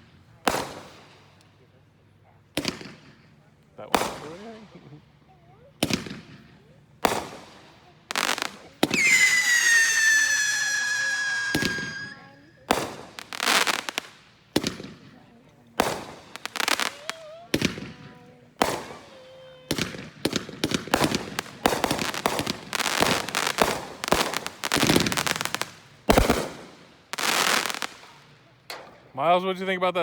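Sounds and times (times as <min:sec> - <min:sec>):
firework bangs and crackling: 0:00.0 - 0:01.7, 0:02.5 - 0:05.0, 0:05.6 - 0:29.0
firework hissing: 0:07.2 - 0:14.2.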